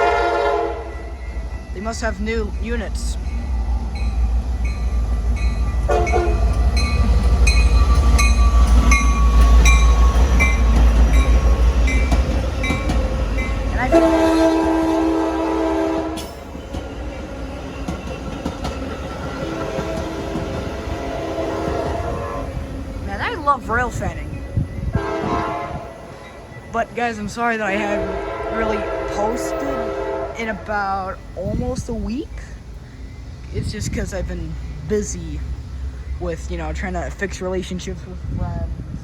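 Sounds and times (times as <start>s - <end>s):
train horn blast: 0.0s - 1.2s, 5.8s - 6.6s, 13.7s - 16.4s, 19.4s - 22.7s, 24.8s - 26.4s, 27.7s - 30.9s
train rumbling past: 0.0s - 39.0s.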